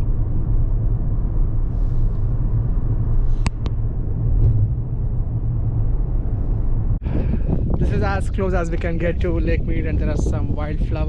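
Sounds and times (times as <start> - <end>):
car road noise rumble: 0.0 - 11.0.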